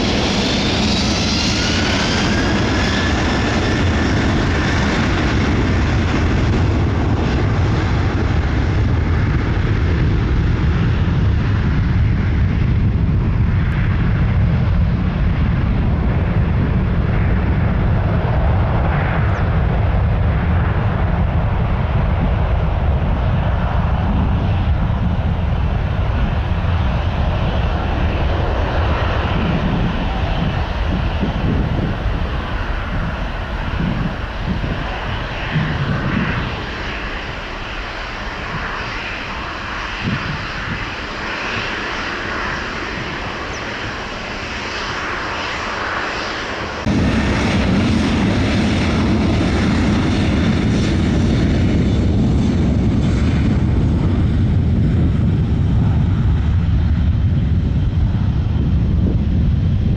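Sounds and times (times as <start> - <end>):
jet airliner taking off: 0.0 - 59.9
falling engine whine: 25.5 - 56.6.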